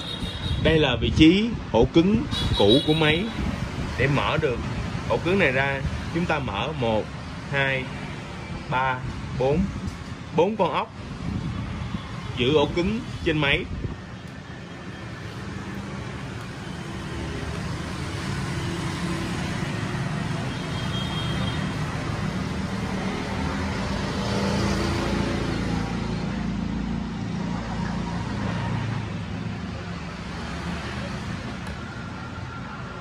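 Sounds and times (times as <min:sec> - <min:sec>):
road traffic rumble: 0:00.0 - 0:33.0.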